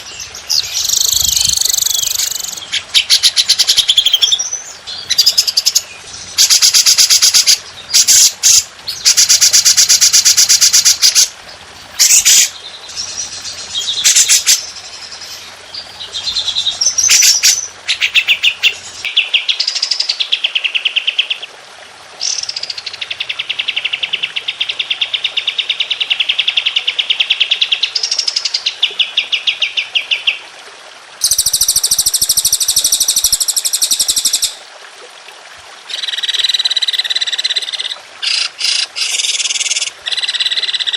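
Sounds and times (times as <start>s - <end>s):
songbird warbles: 0.0s - 11.3s, 12.0s - 21.2s
songbird harsh chattering: 12.0s - 13.1s.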